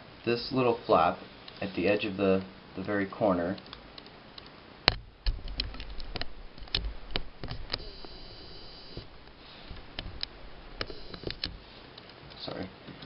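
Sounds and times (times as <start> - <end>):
faint high steady tone: 7.7 - 9.2.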